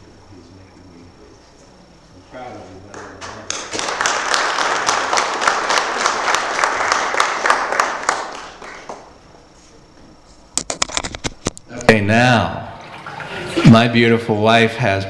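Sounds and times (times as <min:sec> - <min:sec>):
congregation applauding: 0:02.9 - 0:09.2.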